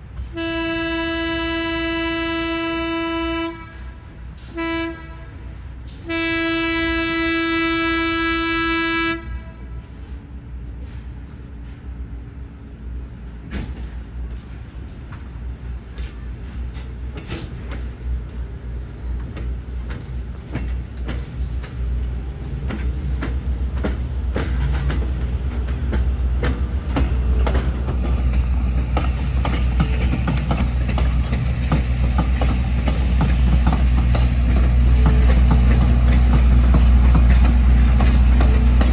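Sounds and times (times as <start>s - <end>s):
diesel locomotive engine rumble: 0.0s - 38.9s
wheels clicking over rail joints: 13.4s - 38.9s.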